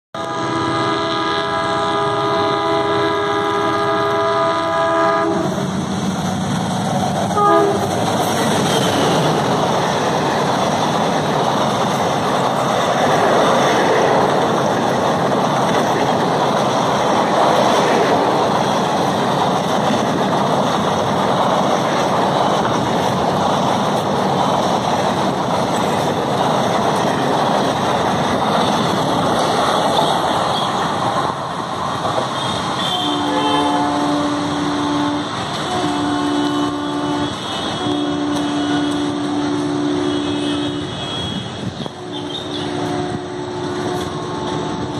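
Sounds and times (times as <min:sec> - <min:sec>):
locomotive multi-tone horn: 0:00.2 - 0:05.7, 0:07.3 - 0:09.9, 0:29.7 - 0:31.0, 0:32.2 - 0:44.9
train wheels rushing on rails: 0:00.2 - 0:44.9.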